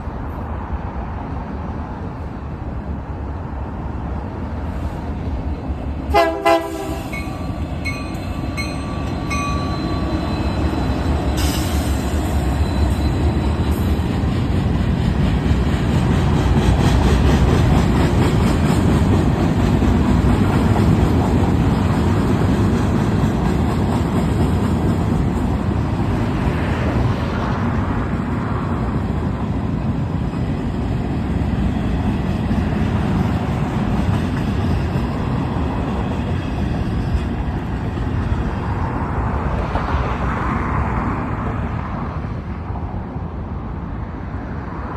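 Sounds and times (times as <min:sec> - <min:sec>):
diesel locomotive rumble: 0:00.0 - 0:43.0
train horn blasts: 0:06.1 - 0:10.1
wheels clattering on rails: 0:07.1 - 0:26.5.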